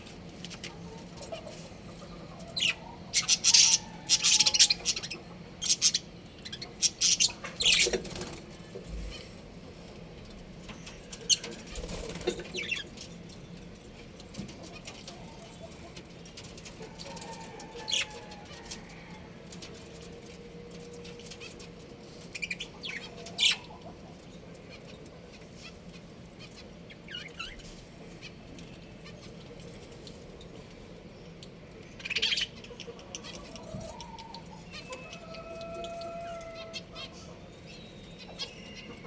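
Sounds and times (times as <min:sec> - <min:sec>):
budgerigars chirping: 0:02.4 - 0:08.3, 0:22.4 - 0:23.9, 0:26.4 - 0:28.3, 0:31.8 - 0:39.0.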